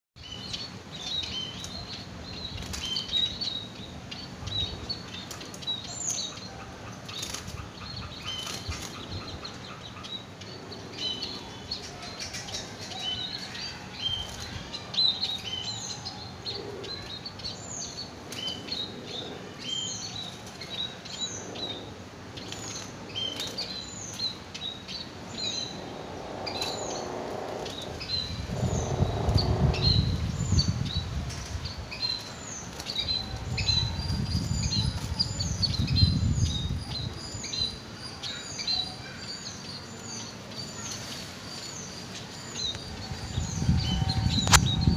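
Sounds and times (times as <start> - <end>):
small birds chirping: 0.2 - 44.9
low rumble: 25.3 - 31.6.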